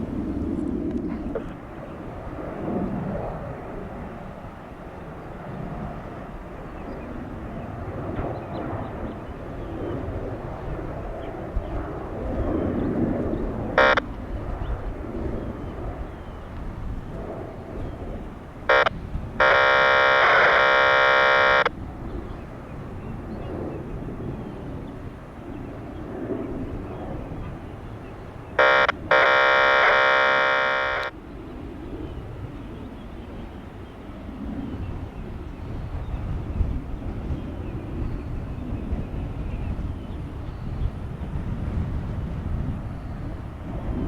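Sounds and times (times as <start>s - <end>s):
jet airliner engine rumble: 0.0s - 44.0s
wind noise: 0.0s - 44.0s
loud buzzing tone: 13.8s - 14.0s, 18.6s - 21.7s, 28.6s - 31.1s.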